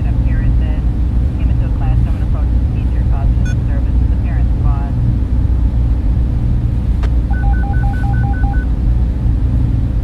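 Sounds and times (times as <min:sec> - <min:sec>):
server fans humming: 0:00.0 - 0:10.0
two-tone electronic beeps: 0:07.3 - 0:08.7.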